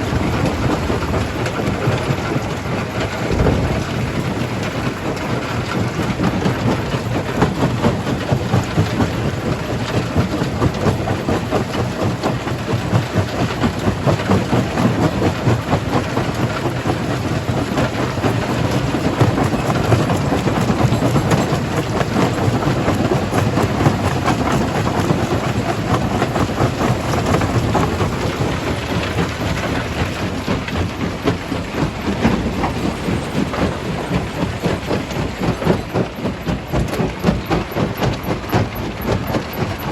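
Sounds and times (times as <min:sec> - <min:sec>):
stone crusher rumbling: 0:00.0 - 0:06.3.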